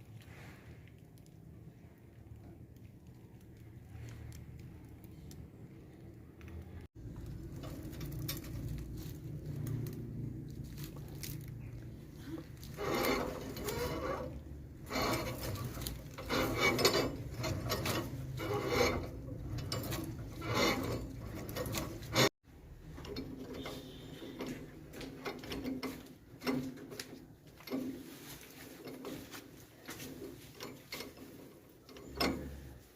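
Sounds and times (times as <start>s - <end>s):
grass rasping through blades: 12.2s - 22.3s.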